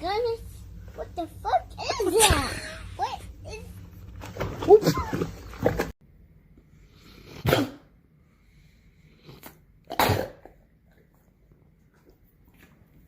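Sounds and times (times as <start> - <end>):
dog sneezing: 7.3 - 7.9, 9.9 - 10.4.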